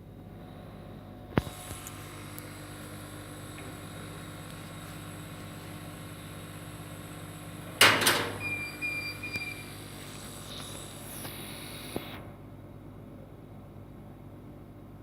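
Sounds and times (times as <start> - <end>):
laser cutter humming: 1.3 - 12.5
loud clatter of lid shutting: 7.8 - 8.4.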